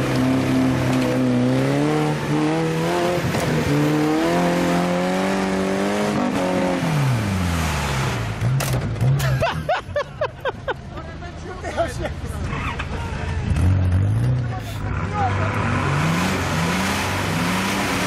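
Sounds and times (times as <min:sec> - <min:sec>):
off-road engine revving: 0:00.0 - 0:09.7, 0:12.2 - 0:18.0.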